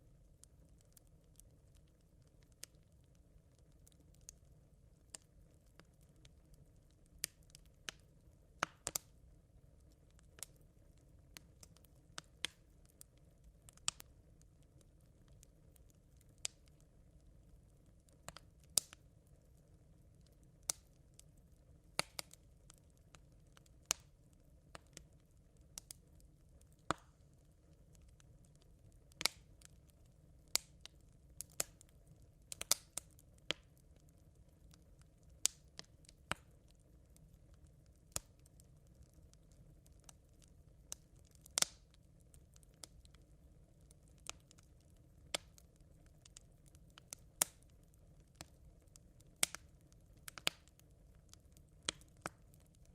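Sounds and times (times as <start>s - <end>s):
campfire embers crackling: 0.0s - 52.9s
faint low background noise: 0.0s - 52.9s.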